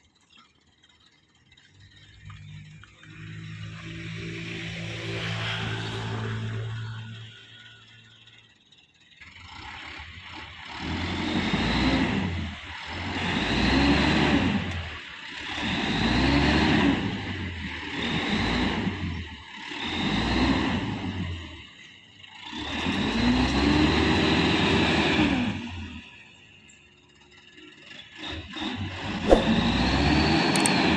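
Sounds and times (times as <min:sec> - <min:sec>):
diesel truck engine revving hard: 0:09.5 - 0:21.6, 0:22.5 - 0:26.0.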